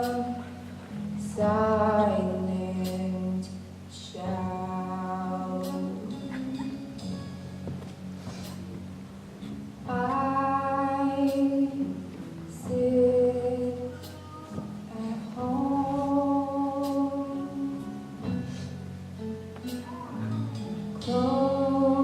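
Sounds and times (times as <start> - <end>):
quiet steady accompaniment: 0.0 - 22.0
person singing long held notes: 9.9 - 18.8, 20.0 - 22.0.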